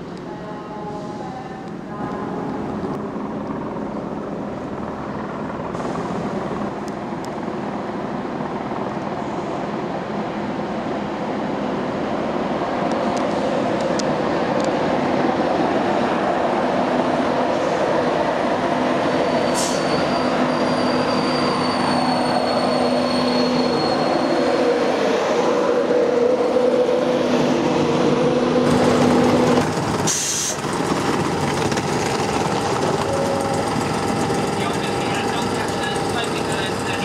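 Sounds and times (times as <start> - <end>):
electric train rumbling: 0.0 - 37.0
high-pitched wheel squeal: 19.1 - 24.9.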